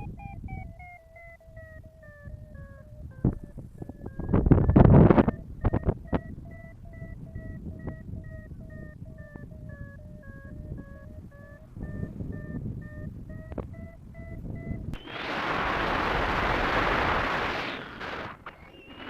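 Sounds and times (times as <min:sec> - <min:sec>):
variometer beeping: 0:00.0 - 0:15.2
wind rushing on microphone: 0:01.5 - 0:19.0.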